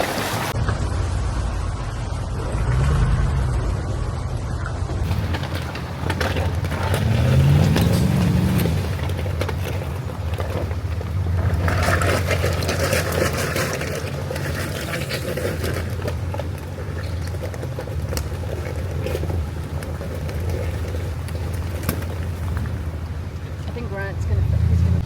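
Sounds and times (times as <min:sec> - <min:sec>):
low engine hum: 0:00.2 - 0:25.0
tyre noise: 0:02.3 - 0:25.0
knocks and rattles: 0:04.6 - 0:23.0.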